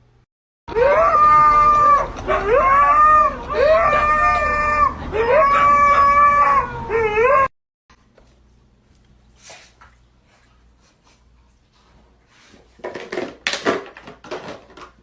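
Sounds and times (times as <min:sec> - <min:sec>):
dog howling: 0:00.7 - 0:07.5.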